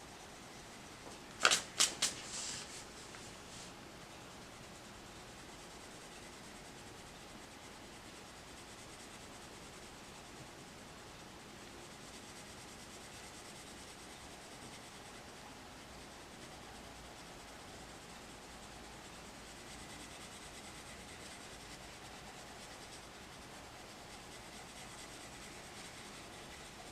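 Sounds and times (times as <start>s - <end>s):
pencil scratching on paper: 19.6s - 26.9s.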